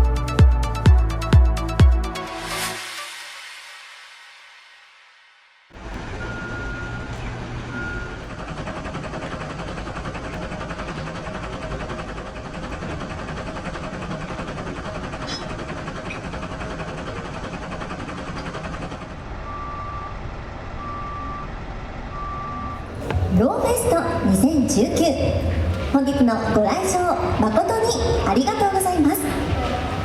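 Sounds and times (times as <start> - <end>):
outdoor noise: 2.2 - 30.0
engine rumble: 5.7 - 30.0
reversing alarm beeping: 5.8 - 8.5, 19.4 - 24.2.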